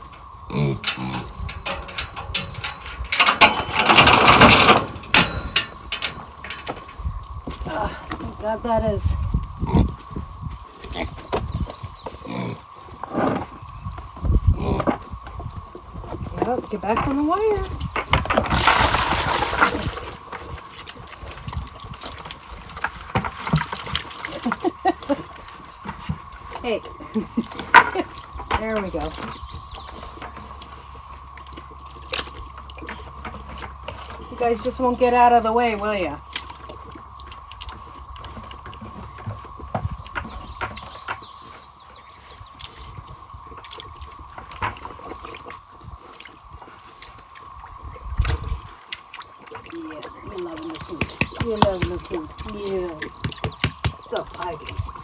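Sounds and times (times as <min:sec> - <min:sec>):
pigs grunting: 0:00.0 - 0:06.7, 0:09.6 - 0:10.2, 0:12.2 - 0:13.6, 0:14.4 - 0:15.2
knocks and clatter: 0:00.8 - 0:07.0
pigs chomping and snuffling: 0:29.1 - 0:34.4, 0:36.2 - 0:55.0.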